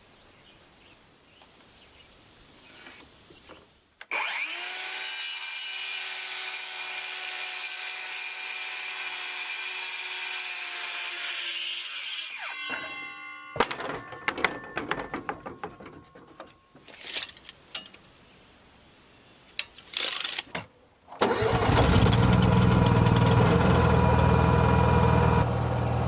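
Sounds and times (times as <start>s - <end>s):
electric saw motor running: 4.1s - 12.6s, 21.6s - 26.0s
wood and tools knocking: 13.6s - 17.0s.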